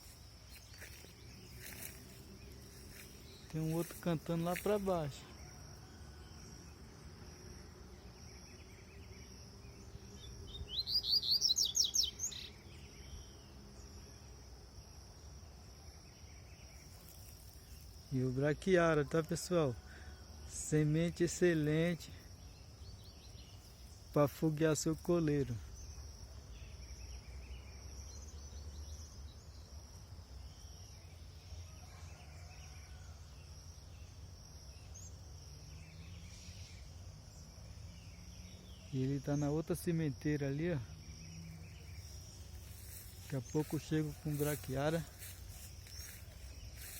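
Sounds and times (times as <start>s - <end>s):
high insect drone: 0.0s - 46.9s
faint bird chirps: 8.3s - 14.2s.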